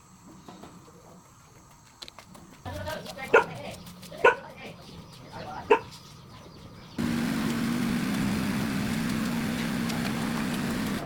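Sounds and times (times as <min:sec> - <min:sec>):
small engine running: 0:07.0 - 0:11.0.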